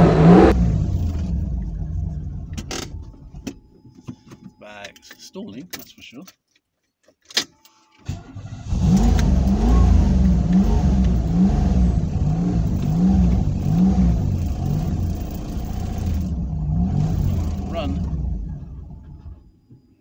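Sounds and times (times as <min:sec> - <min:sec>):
car engine cranking and revving: 0:00.0 - 0:03.6, 0:08.1 - 0:19.8.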